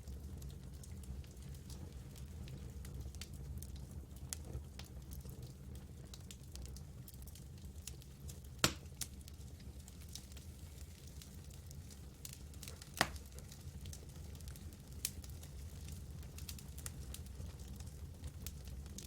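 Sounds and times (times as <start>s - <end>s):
campfire crackling: 0.1s - 19.0s.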